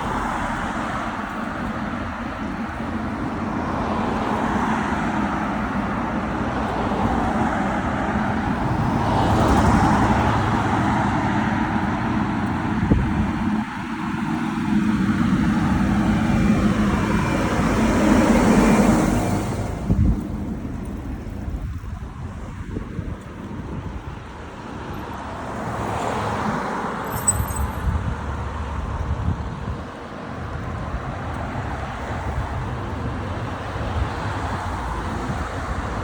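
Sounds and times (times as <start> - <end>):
vehicles passing close by: 0.0 - 36.0.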